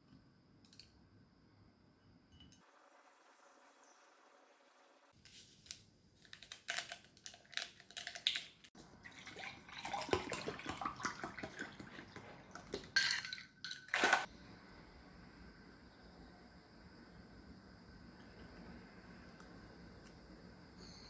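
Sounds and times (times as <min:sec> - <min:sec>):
water running: 0:08.8 - 0:14.3.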